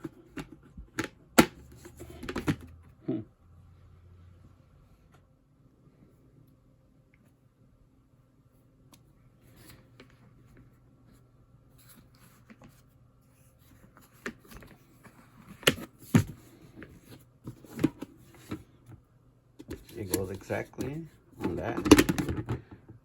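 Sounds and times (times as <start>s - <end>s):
plastic parts rubbing and scraping: 1.6s - 2.7s, 19.6s - 22.7s.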